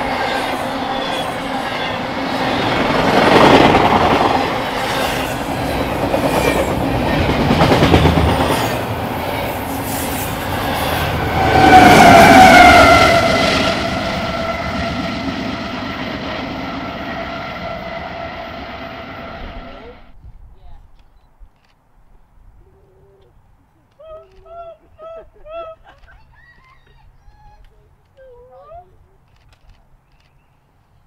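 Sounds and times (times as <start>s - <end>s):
freight train rumbling and clicking: 0.0s - 18.0s
train horn: 9.9s - 20.1s.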